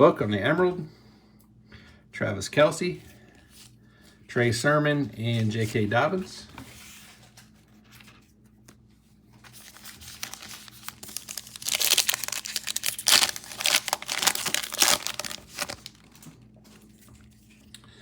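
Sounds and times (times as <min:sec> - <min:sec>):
wrapper tearing and crinkling: 0:09.4 - 0:16.3.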